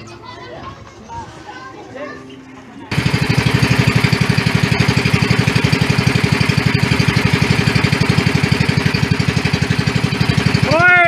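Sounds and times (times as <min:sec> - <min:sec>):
boat engine chugging: 0:02.9 - 0:11.0.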